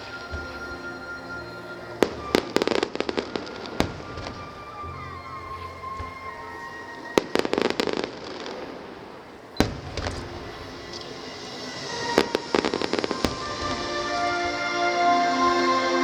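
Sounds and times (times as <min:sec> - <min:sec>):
background music: 0:00.0 - 0:16.0
fireworks crackling: 0:00.0 - 0:16.0
firework bang: 0:09.6 - 0:14.0.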